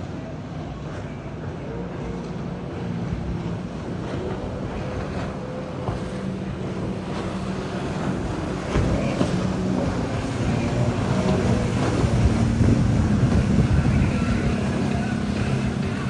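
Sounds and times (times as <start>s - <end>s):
boat engine running: 0.0s - 16.0s
water noise: 0.0s - 16.0s
wind noise: 7.6s - 16.0s.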